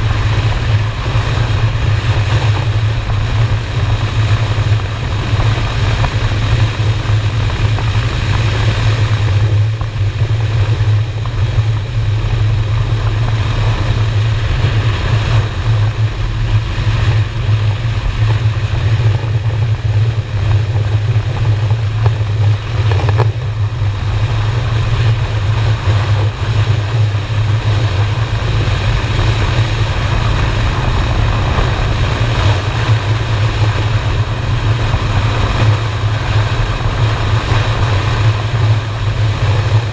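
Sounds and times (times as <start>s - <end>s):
motorcycle engine running: 0.0s - 39.9s
rush of wind noise: 0.0s - 39.9s.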